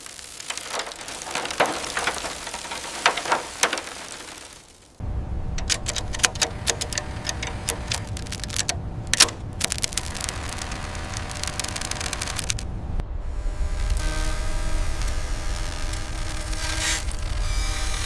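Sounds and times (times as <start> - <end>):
rapid clicks: 0.0 - 12.7
steady low rumble: 4.9 - 18.0
sharp clicks and taps: 5.6 - 12.7.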